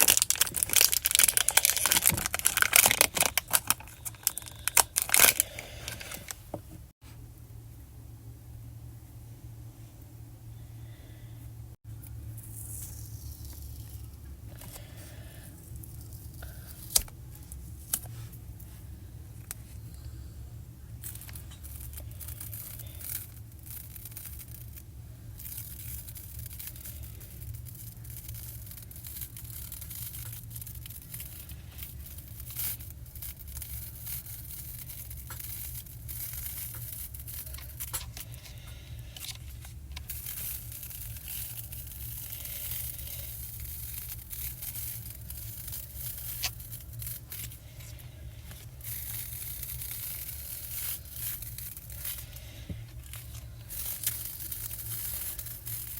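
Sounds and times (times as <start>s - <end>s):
paper rustling: 0.0s - 6.4s
stickers being peeled: 0.0s - 6.4s, 12.4s - 18.2s, 21.0s - 55.9s
steady low hum: 0.0s - 55.9s.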